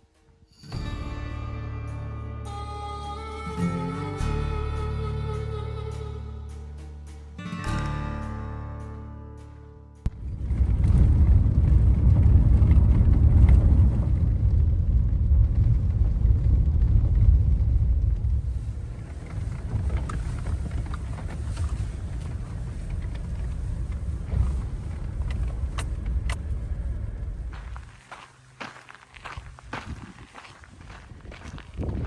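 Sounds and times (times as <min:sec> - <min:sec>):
wind buffeting microphone: 0:10.1 - 0:32.0.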